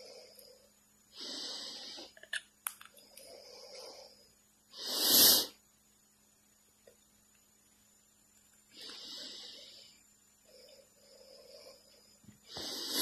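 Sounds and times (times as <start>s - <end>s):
cockatiel hissing: 4.7s - 5.6s, 12.5s - 13.0s.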